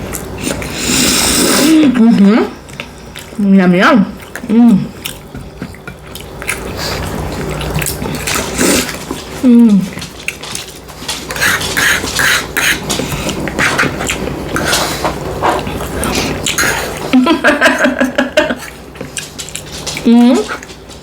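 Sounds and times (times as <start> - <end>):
chewing and mouth smacks: 2.6 - 3.4, 4.1 - 17.1, 18.5 - 21.0.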